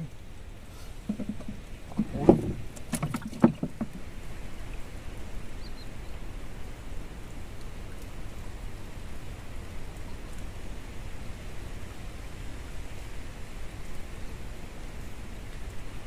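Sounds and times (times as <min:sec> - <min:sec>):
steady background hiss: 0:00.0 - 0:16.0
knocks on wooden boat: 0:01.0 - 0:04.1.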